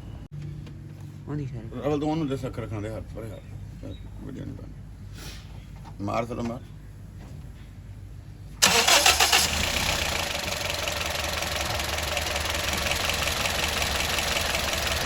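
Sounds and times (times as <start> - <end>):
car engine cranking: 8.6 - 15.0
car engine idling: 8.6 - 15.0.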